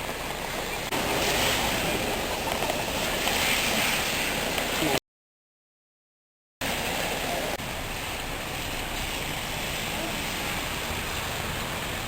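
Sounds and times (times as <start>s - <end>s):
water rushing over a dam: 0.9s - 5.0s.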